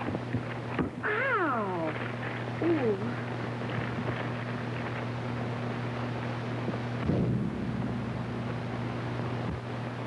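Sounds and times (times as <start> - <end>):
film soundtrack hum and hiss: 0.0 - 10.0
low rumbling boom: 7.0 - 10.0.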